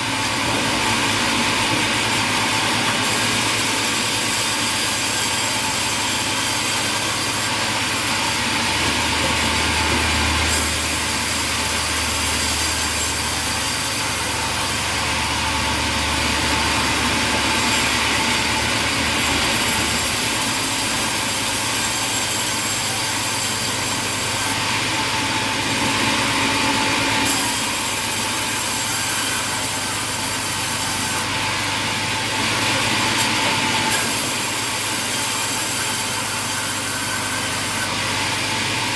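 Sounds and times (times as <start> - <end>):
deep machinery hum: 0.0 - 38.9
saw cutting through wood: 0.0 - 38.9.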